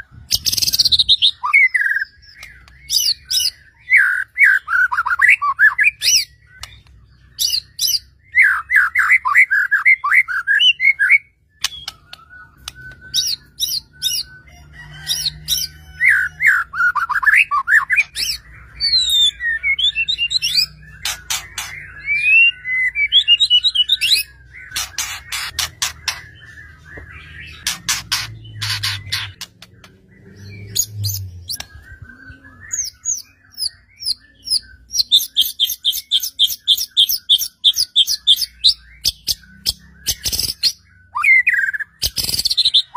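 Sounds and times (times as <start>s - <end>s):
songbird singing varied phrases: 0.1s - 42.9s.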